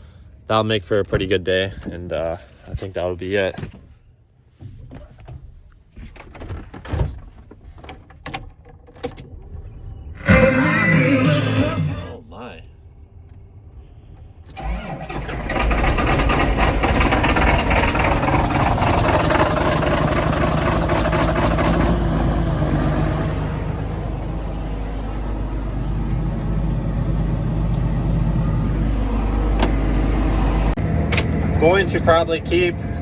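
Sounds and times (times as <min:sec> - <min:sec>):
tractor diesel engine running: 0:10.2 - 0:12.2, 0:14.5 - 0:33.0.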